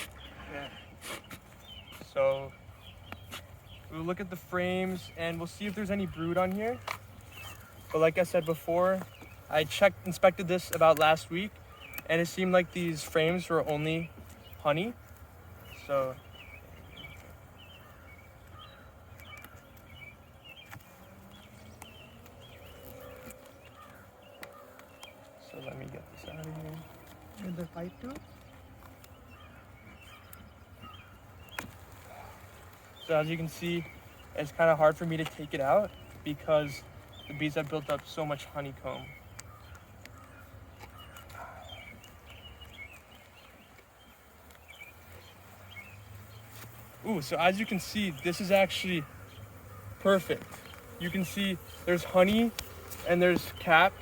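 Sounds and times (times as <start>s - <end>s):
honeybees humming: 0.0s - 54.0s
small birds chirping: 0.0s - 54.0s
sharp clicks of hive frame: 16.4s - 29.4s, 49.2s - 54.0s.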